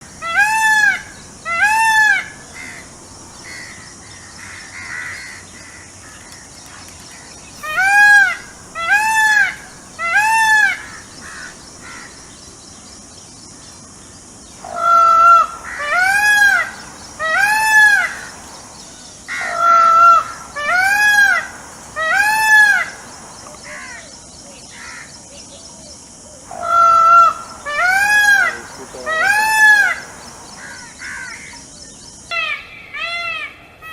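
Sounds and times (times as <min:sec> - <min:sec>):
peacock calling: 0:00.0 - 0:33.9.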